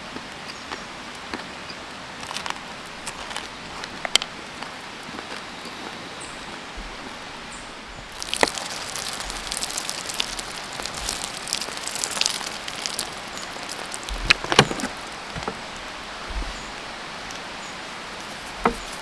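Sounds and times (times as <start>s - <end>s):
sharp crackles and pops: 2.2s - 19.0s
food sizzling on charcoal grill: 8.0s - 16.8s, 17.6s - 19.0s.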